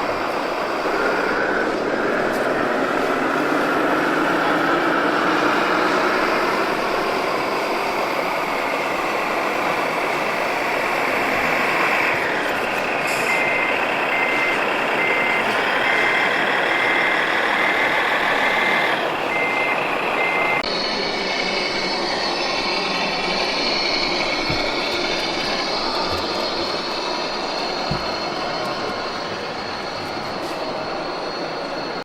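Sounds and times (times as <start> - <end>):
model truck motor running: 0.0 - 30.9
reversing beeper beeps: 2.9 - 32.0.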